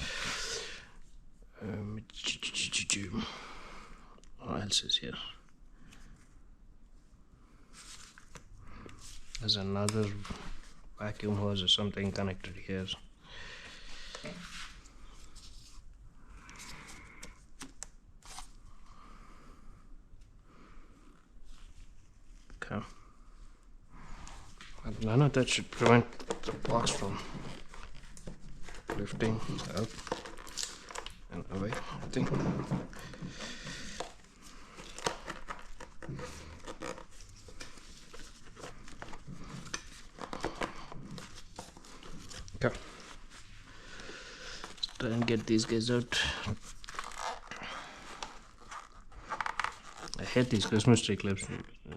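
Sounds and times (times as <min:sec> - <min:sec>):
plastic parts rustling and scraping: 0:25.0 - 0:43.5, 0:44.6 - 0:51.0.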